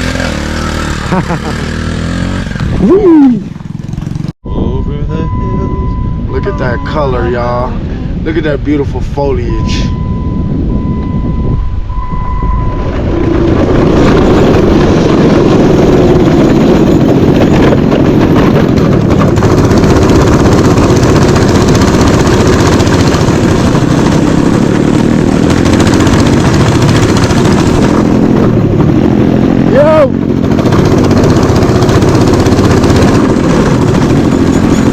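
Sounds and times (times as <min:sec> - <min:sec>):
mini bike engine running: 0:00.0 - 0:04.3, 0:13.0 - 0:34.9.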